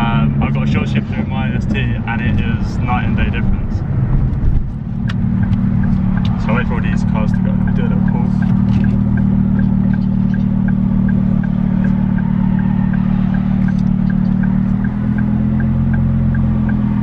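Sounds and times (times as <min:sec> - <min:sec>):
car engine idling: 0:00.0 - 0:17.0
light engine ticking: 0:05.4 - 0:17.0.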